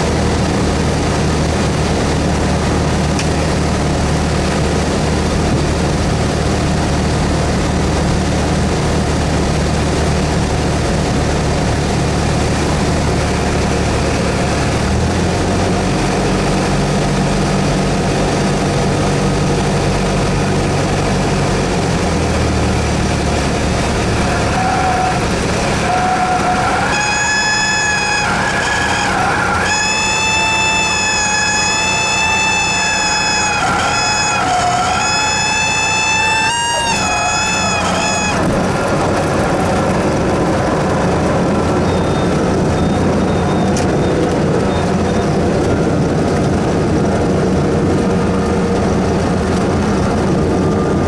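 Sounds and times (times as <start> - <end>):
light aircraft engine droning: 0.0 - 51.0
held pitched tone: 24.2 - 44.3.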